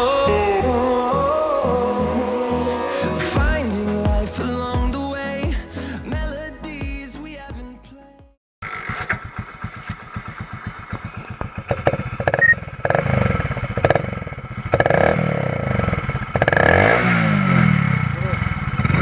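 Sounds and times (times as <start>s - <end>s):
motorcycle engine idling: 8.6s - 19.0s
motorcycle throttle blips: 8.6s - 19.0s.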